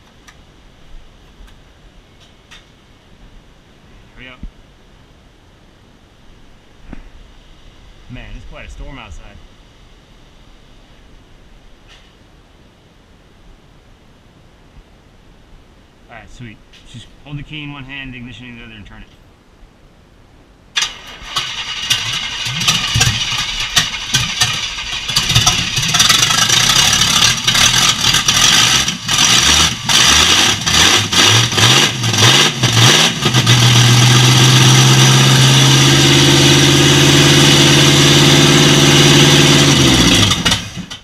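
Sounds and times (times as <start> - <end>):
engine starting and stumbling: 20.8 - 41.0.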